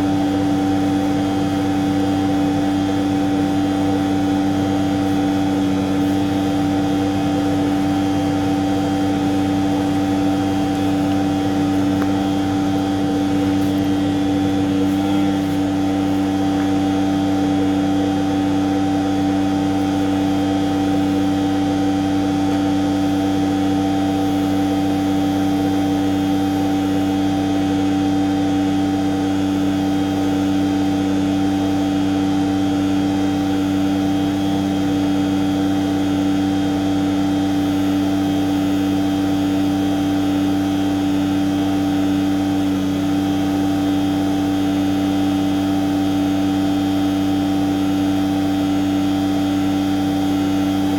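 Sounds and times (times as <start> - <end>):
truck machinery droning: 0.0 - 50.9.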